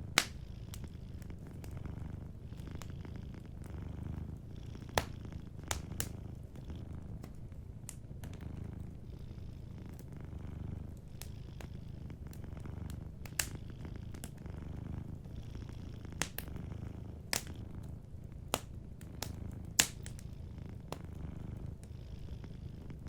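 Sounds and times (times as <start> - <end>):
wood fire crackling and popping: 0.0 - 21.9
cat purring: 0.0 - 23.0.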